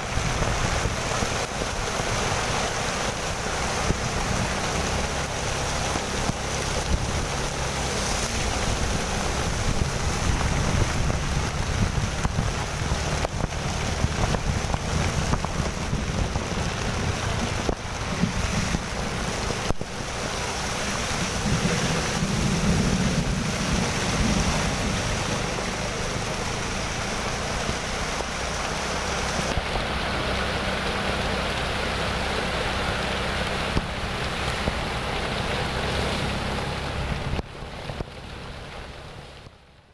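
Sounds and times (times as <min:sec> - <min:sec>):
wind rumbling on microphone: 0:00.0 - 0:39.6
heavy rain: 0:00.0 - 0:39.9.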